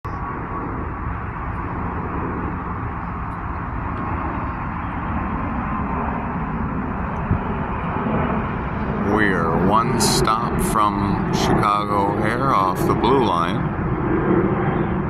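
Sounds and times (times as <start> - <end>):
faint engine whine: 0.0 - 15.0
jet engines roaring: 0.0 - 15.0.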